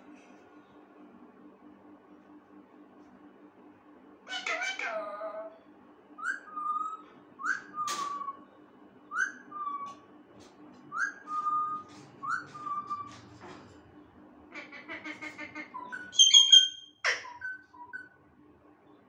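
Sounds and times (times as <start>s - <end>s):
parrot whistling: 6.2s - 8.4s, 9.1s - 9.9s, 10.9s - 13.1s, 15.8s - 18.2s.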